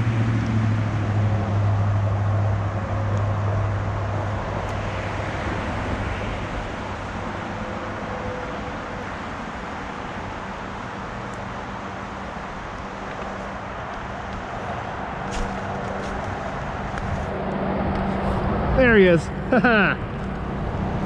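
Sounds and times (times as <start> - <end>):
creek water rushing: 1.6 - 17.4.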